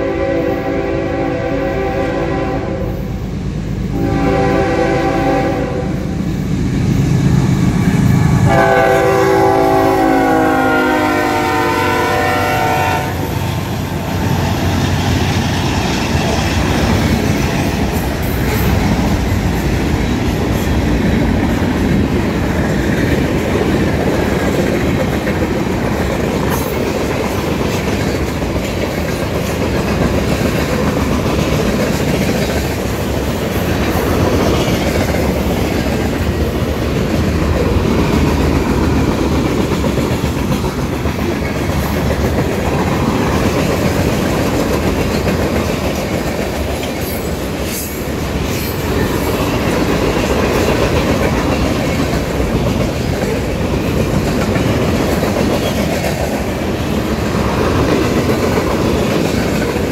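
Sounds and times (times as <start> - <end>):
train horn chord: 0.0 - 3.1, 3.9 - 6.2, 8.2 - 13.3
train rumble: 0.0 - 59.9
wheels clacking over rail joints: 13.4 - 59.9.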